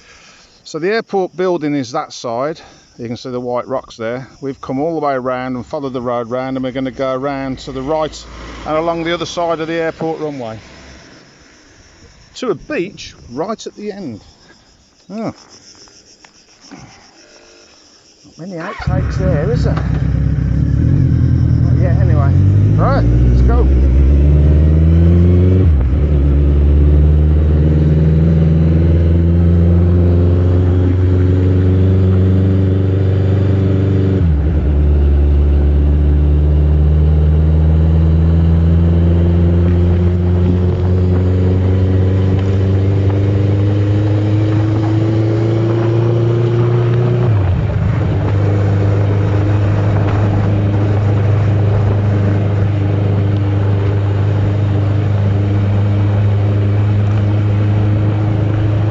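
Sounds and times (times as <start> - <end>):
car engine accelerating: 6.0 - 12.2, 18.7 - 58.9.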